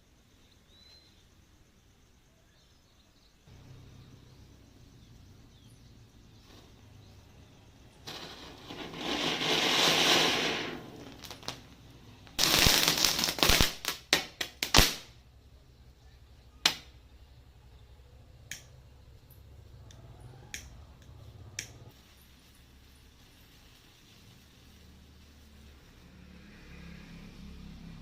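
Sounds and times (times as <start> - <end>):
matches flaring with a hiss: 5.5 - 15.3, 21.2 - 28.0
firecrackers popping: 6.4 - 15.2, 16.6 - 17.0.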